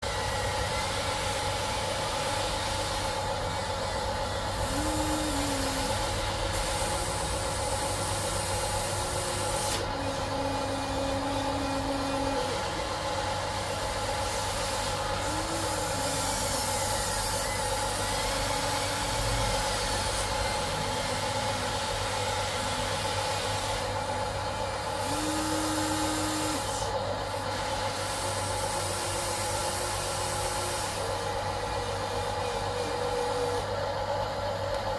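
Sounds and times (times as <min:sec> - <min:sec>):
electric motors whining: 0:00.0 - 0:34.9
low hydraulic tone: 0:04.5 - 0:24.0.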